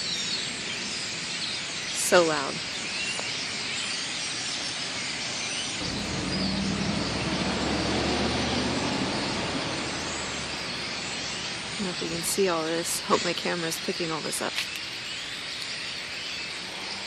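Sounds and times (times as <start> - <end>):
flock of birds chattering: 0.0 - 17.0
passing vehicle engine hum: 5.8 - 12.8.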